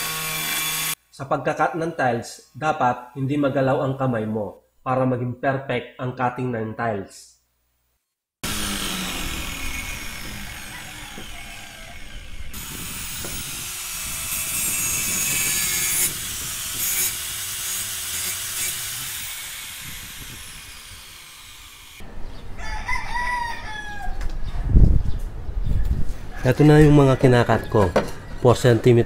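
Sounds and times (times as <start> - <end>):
angle grinder cutting tile: 0.0 - 1.0, 8.4 - 22.0
rooster crowing: 9.0 - 12.6, 22.4 - 24.5, 25.7 - 28.8.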